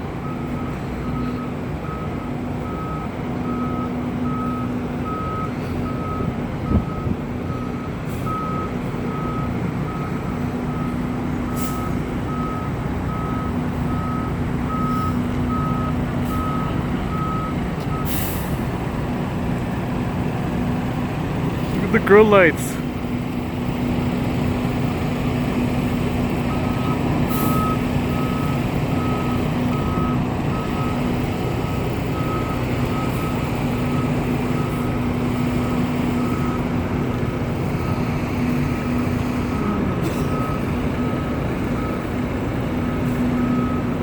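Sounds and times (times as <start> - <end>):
fire engine running: 0.0 - 44.0.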